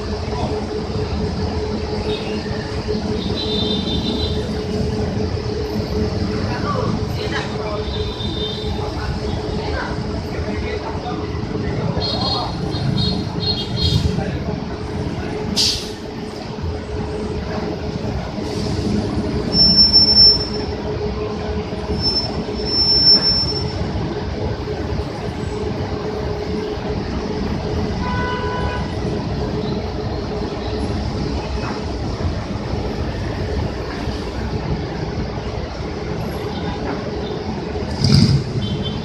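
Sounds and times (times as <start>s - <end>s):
bus engine rumble: 0.0s - 39.0s
high-pitched brake squeals: 19.4s - 20.8s, 21.9s - 23.9s
short pitched tone: 19.5s - 20.7s.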